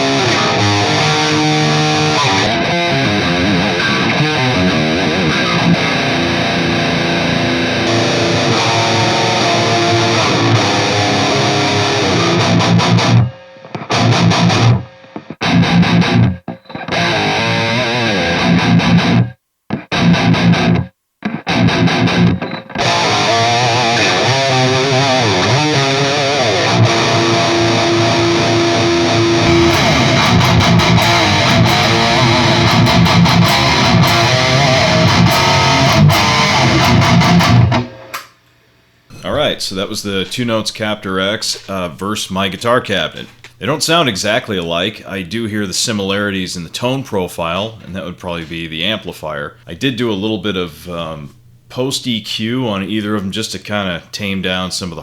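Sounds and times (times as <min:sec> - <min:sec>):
distorted electric guitar riff: 0:00.0 - 0:38.3, 0:39.1 - 0:44.4.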